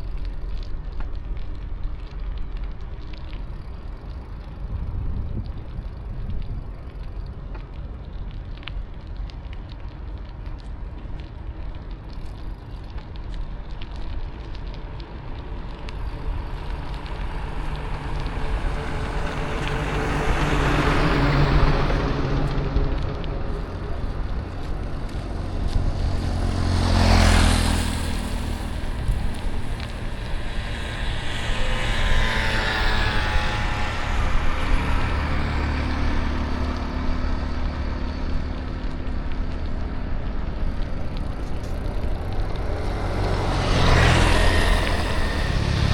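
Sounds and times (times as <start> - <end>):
low road rumble: 0.0 - 45.9
motor vehicles passing close: 13.8 - 45.9.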